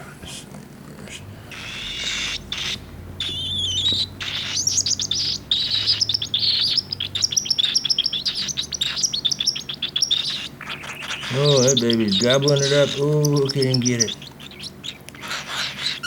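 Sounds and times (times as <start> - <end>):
rapid high chirps: 1.2 - 16.0
raspy hissing bird call: 1.4 - 6.9
wavering whistle: 1.5 - 16.0.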